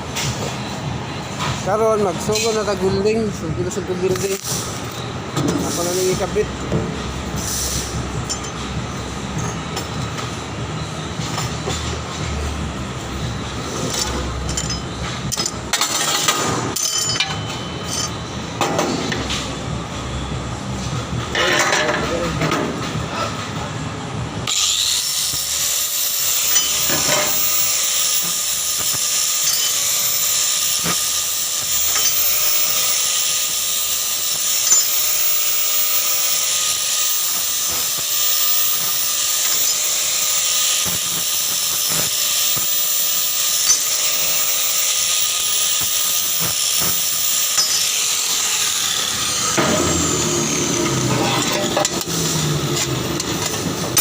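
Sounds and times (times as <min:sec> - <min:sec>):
welding arc crackling hiss: 0:05.6 - 0:11.4, 0:24.4 - 0:54.0.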